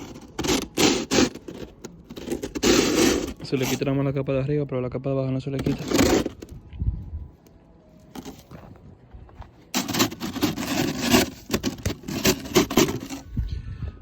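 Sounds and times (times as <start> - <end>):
ice scraping off a car: 0.0 - 4.1, 5.6 - 6.5, 9.7 - 13.3.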